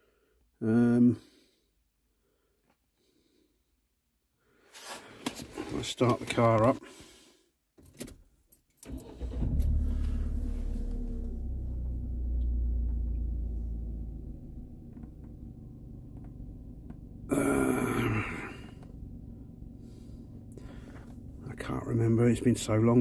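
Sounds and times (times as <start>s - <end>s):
car engine starting and idling: 8.8s - 23.0s.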